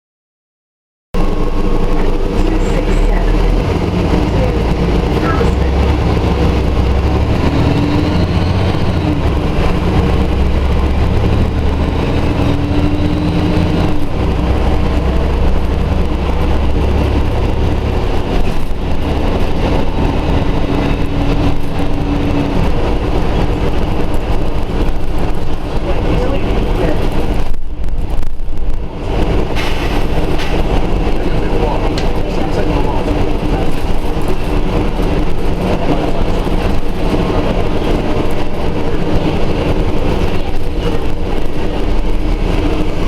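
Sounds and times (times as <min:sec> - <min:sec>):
bus engine rumble: 0:01.2 - 0:43.0
drawn-out whine: 0:01.2 - 0:43.0.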